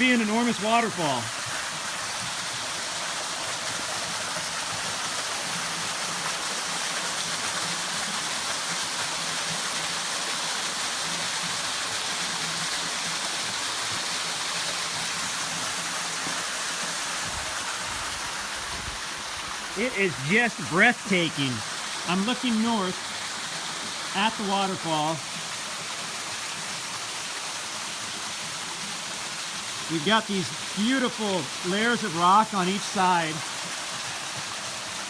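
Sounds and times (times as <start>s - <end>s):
waterfall pouring into pool: 0.0s - 35.0s.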